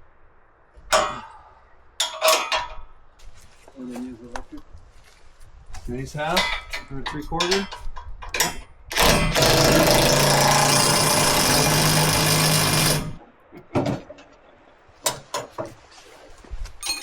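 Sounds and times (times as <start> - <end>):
impact driver hammering: 8.9 - 13.2.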